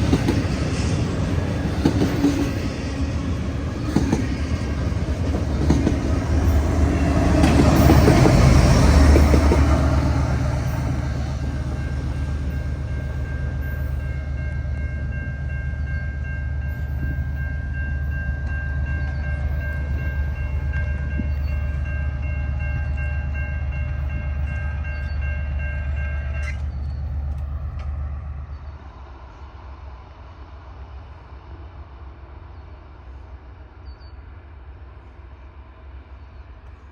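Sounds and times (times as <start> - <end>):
freight train rumbling: 0.0 - 36.9.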